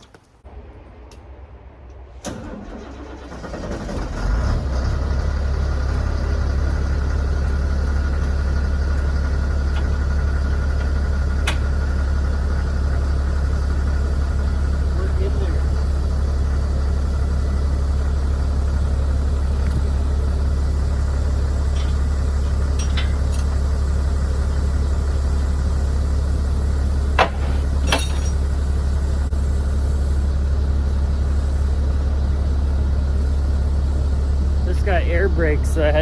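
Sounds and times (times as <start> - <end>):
diesel engine idling: 2.0 - 36.0.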